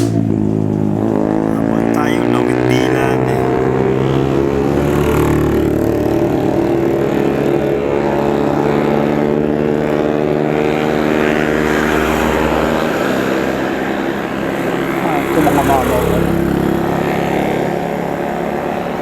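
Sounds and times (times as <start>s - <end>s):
vehicle engine running under load: 0.0s - 19.0s.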